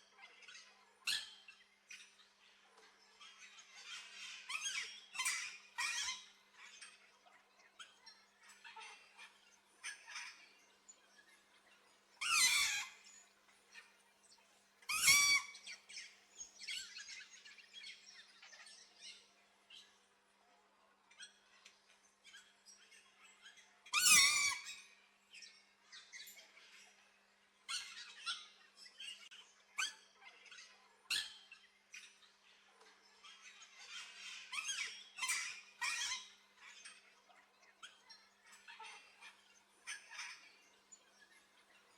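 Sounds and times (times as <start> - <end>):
parrots chirping and chattering: 2.6 - 7.1, 7.8 - 11.2, 12.2 - 14.0, 14.9 - 19.9, 21.2 - 41.9
parrots squawking: 12.2 - 13.0, 14.9 - 15.6, 24.0 - 24.6.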